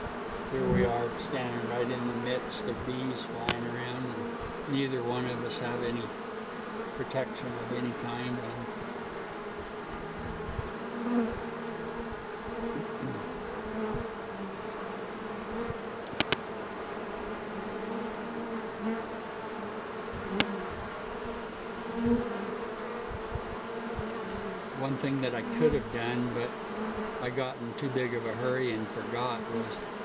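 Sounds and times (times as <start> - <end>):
bees buzzing: 0.0 - 30.0
sharp clicks: 16.0 - 16.4.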